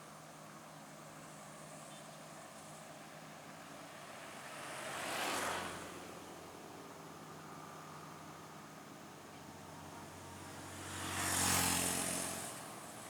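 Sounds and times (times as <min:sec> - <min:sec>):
vehicle passing by: 0:04.2 - 0:06.2, 0:10.1 - 0:13.0.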